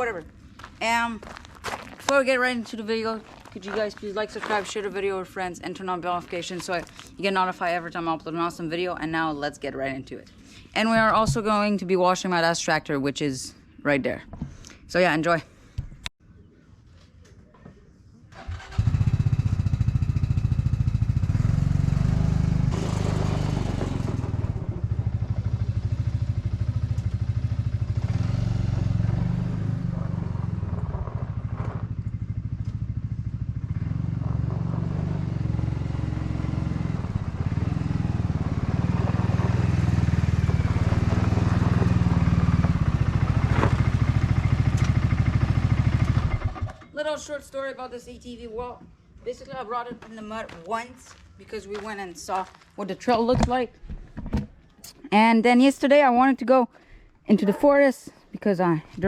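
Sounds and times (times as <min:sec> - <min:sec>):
vehicle engine running: 0:18.9 - 0:46.7.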